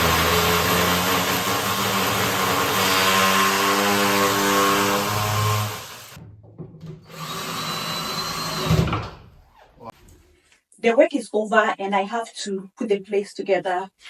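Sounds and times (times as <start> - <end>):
power tool running loudly: 0.0 - 6.2.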